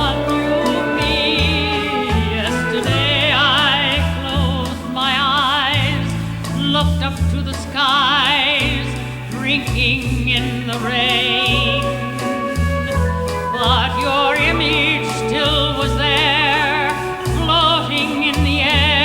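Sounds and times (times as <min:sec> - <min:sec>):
orchestra: 0:00.0 - 0:19.0
woman singing with vibrato: 0:00.0 - 0:19.0.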